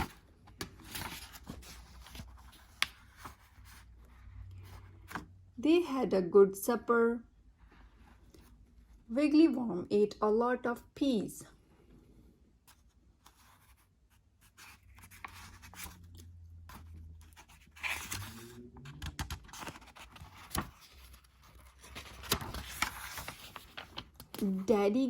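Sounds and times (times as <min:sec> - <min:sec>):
paper pages rustling: 0:00.0 - 0:03.8, 0:12.7 - 0:24.8.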